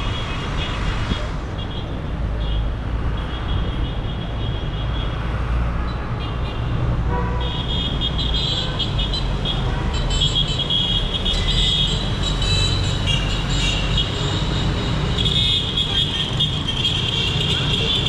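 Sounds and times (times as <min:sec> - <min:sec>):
traffic engines rumbling: 0:00.0 - 0:18.0
car horns honking: 0:06.2 - 0:18.0.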